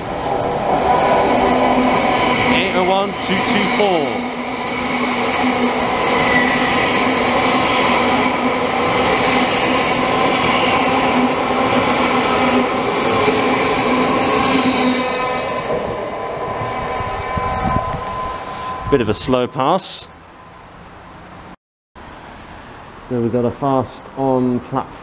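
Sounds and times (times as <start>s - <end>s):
train wheels rumbling on rail: 0.0s - 19.6s
traction motor hum: 0.2s - 19.2s.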